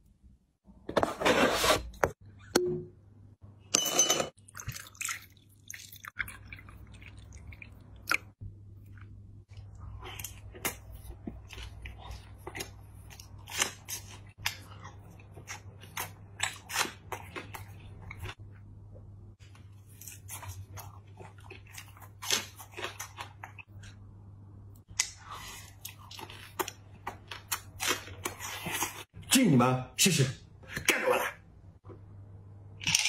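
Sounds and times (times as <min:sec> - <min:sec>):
person biting and chewing food: 0:06.6 - 0:18.4, 0:19.8 - 0:24.0, 0:24.9 - 0:29.0.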